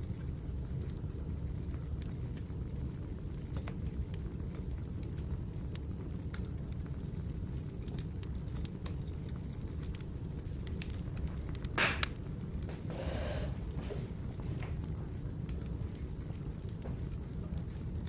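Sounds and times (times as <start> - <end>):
wood fire crackling: 0.0 - 18.0
loud snap of fire: 7.6 - 14.8
rustling hiss: 12.7 - 14.5.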